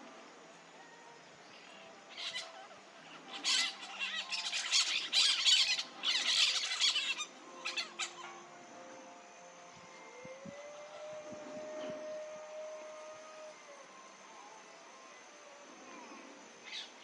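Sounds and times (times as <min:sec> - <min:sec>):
parakeet rasping calls: 0:03.4 - 0:08.3.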